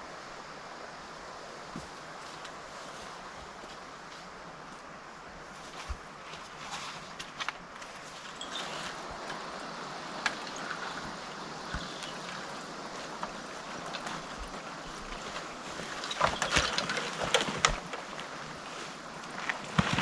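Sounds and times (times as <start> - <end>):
forest stream rushing: 0.0 - 20.0
rustles and knocks: 10.2 - 20.0.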